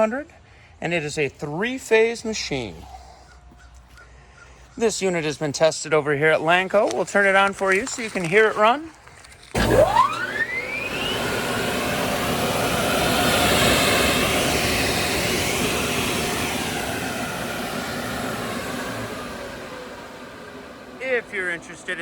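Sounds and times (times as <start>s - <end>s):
rushing air with faint hum: 6.2s - 22.0s
blower whine spinning up: 9.4s - 22.0s.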